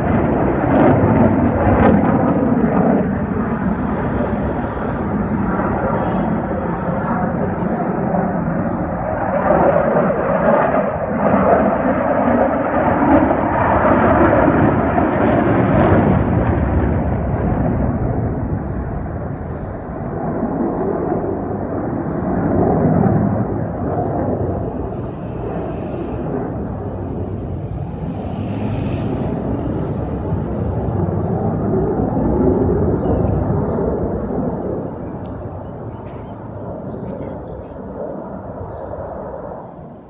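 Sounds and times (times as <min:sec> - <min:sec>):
jet aircraft roaring past: 0:00.0 - 0:40.0.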